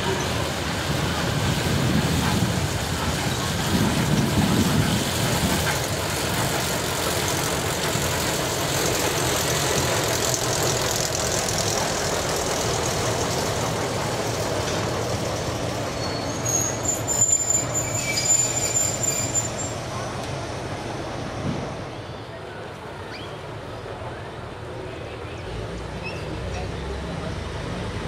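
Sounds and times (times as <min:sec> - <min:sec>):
train rumbling past: 0:00.0 - 0:28.0
thin high wheel squeal: 0:15.7 - 0:20.1.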